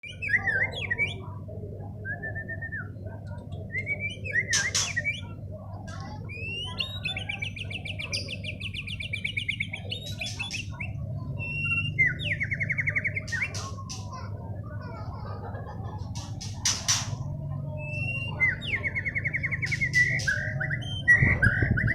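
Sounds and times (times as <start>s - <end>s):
bird singing whistles and trills: 0.0s - 14.0s, 17.7s - 21.9s.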